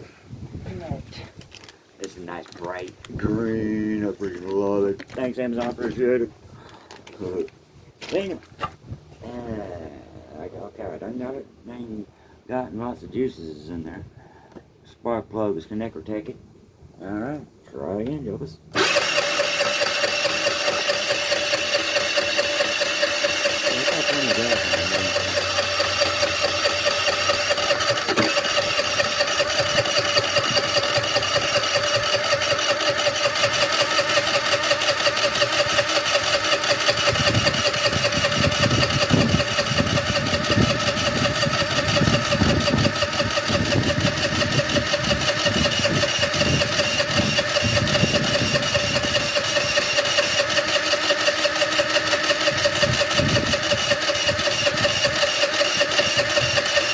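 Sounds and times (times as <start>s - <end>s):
moped engine cranking: 18.7s - 56.9s.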